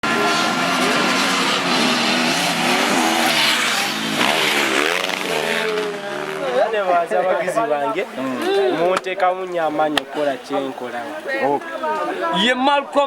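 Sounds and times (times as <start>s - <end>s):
dirt bike engines revving: 0.0s - 12.4s.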